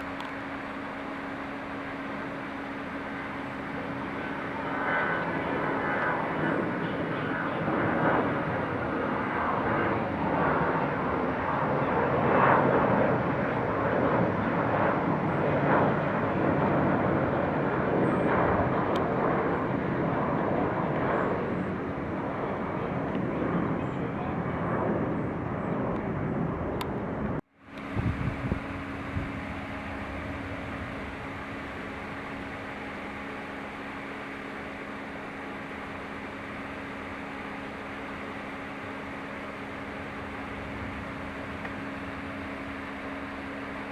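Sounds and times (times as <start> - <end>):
jet engines roaring: 0.0 - 43.9
steady hum: 0.0 - 43.9.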